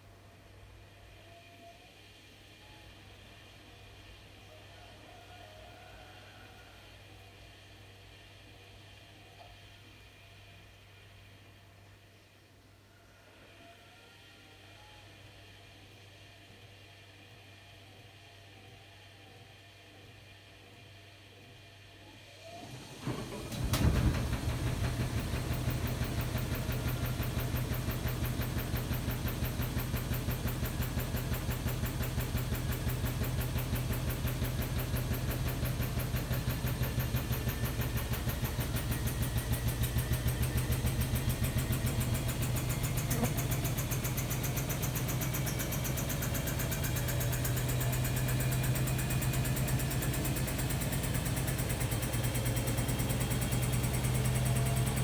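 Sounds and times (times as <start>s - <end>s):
washer-dryer fast-pulsing hum: 22.2s - 55.0s.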